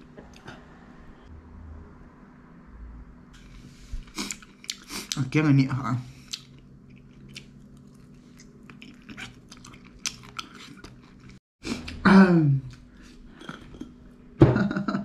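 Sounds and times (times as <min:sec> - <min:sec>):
chewing and gnawing: 0:06.2 - 0:12.0.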